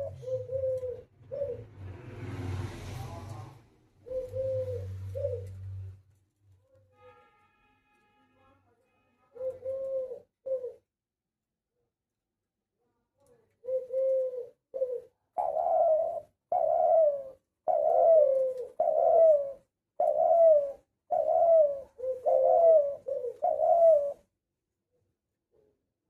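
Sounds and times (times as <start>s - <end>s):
dove cooing: 0.0s - 1.9s, 4.0s - 5.8s, 9.4s - 10.9s, 13.6s - 24.3s.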